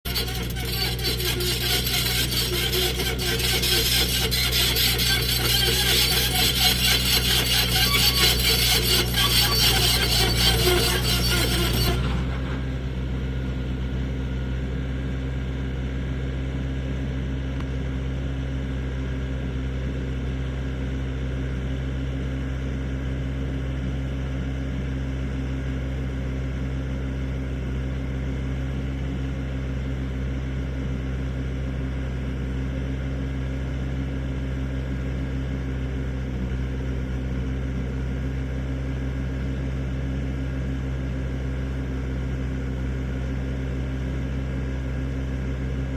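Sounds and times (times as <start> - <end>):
excavator engine humming: 0.0 - 15.6.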